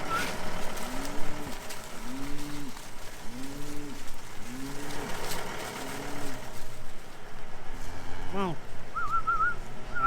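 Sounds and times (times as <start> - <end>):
cattle mooing: 0.0 - 5.1.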